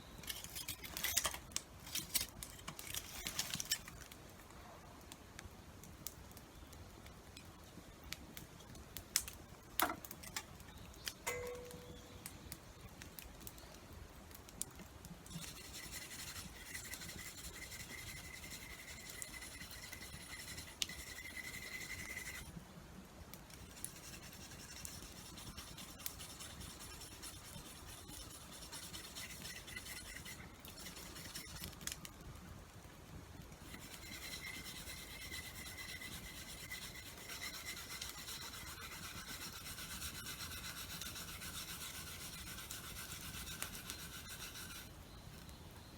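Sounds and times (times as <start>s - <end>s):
rubbing scraping noise: 15.3s - 22.5s, 23.6s - 31.8s, 33.6s - 44.9s.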